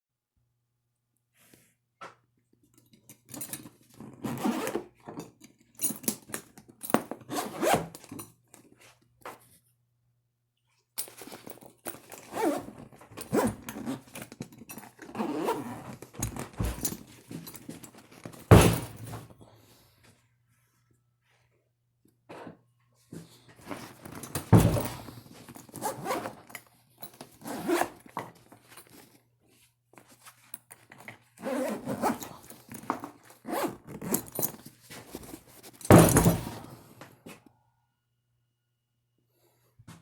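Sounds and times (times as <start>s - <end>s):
zippers rasping open and shut: 3.3s - 8.2s, 11.0s - 19.3s, 23.6s - 29.0s, 30.8s - 36.9s.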